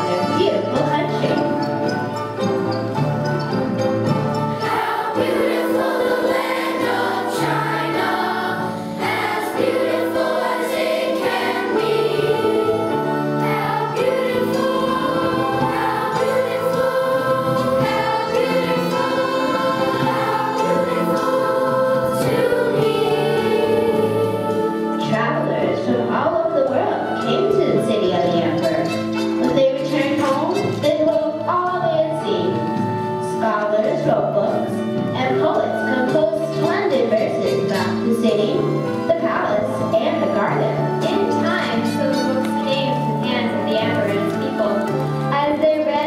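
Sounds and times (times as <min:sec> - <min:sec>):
low instrumental accompaniment: 0:00.0 - 0:46.0
choir singing: 0:04.3 - 0:27.3.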